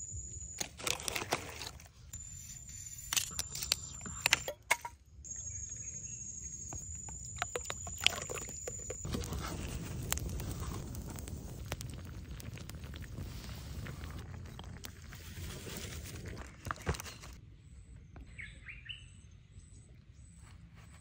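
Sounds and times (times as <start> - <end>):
campfire crackling: 0.3 - 4.6, 6.7 - 17.4
liquid pouring into jar: 6.9 - 9.1.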